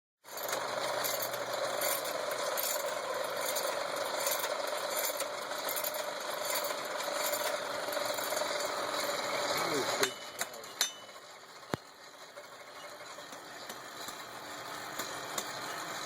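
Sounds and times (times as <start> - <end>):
forge blower whirring: 0.3 - 16.0.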